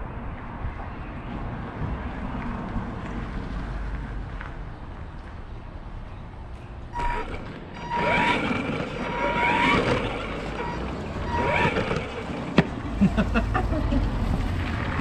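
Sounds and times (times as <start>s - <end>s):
rough ground noise: 2.3s - 15.0s
high motor whine: 6.9s - 13.7s.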